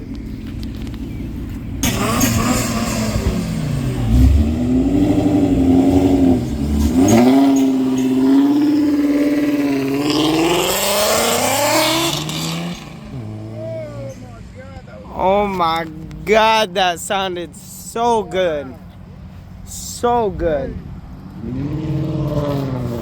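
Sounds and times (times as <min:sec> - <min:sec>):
car engine revving hard: 0:01.8 - 0:14.2, 0:21.2 - 0:23.0.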